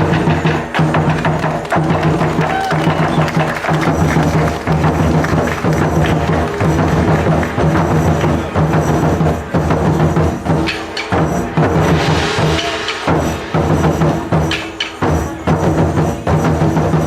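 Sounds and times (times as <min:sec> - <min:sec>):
drums in a fast rhythm: 0:00.0 - 0:17.0
sharp clacking strikes: 0:00.0 - 0:17.0
repeating low beat: 0:03.4 - 0:17.0.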